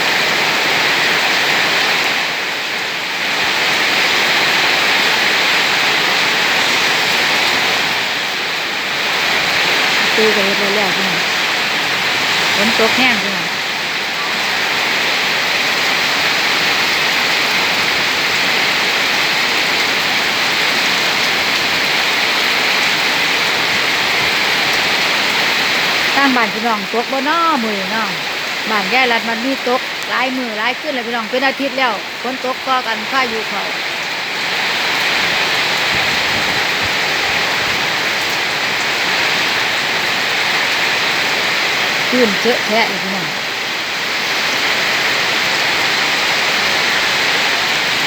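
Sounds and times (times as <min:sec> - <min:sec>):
heavy rain pouring: 0:00.0 - 0:48.0.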